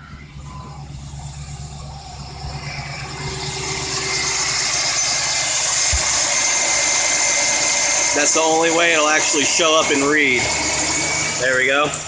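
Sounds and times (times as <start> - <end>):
engine running at raised idle: 0.0 - 12.0.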